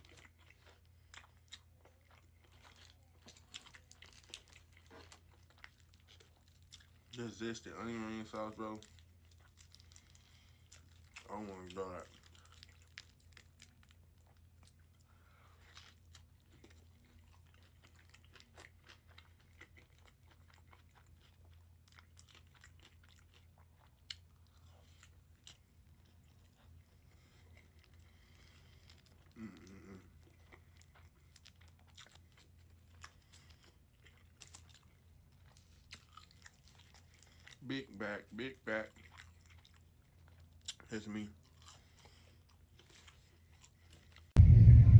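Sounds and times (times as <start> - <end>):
chewing and crunching: 0.0 - 44.4
low steady hum: 44.4 - 44.9.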